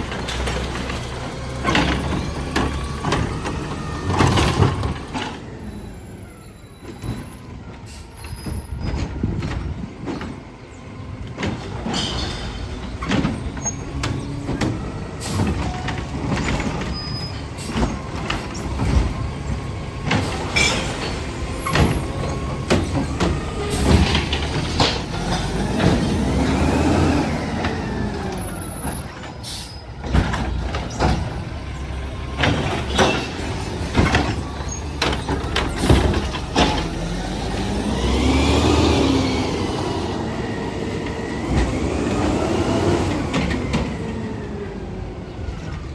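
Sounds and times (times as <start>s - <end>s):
garbage truck engine running: 0.0s - 45.9s
air brakes hissing: 7.8s - 8.7s, 29.4s - 30.0s
sharp metal clanks and knocks: 11.8s - 14.1s.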